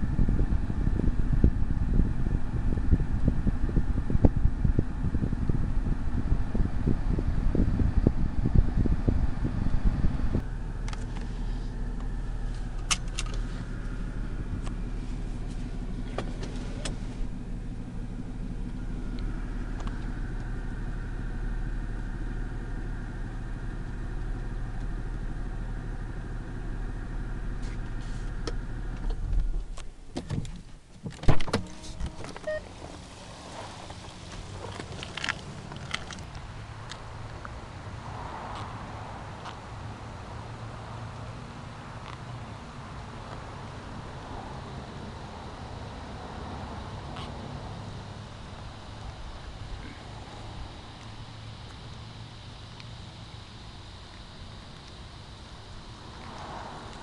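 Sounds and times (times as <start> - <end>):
car engine idling hum: 0.0 - 57.0
car door opening clunks: 14.6 - 17.4, 27.6 - 36.4.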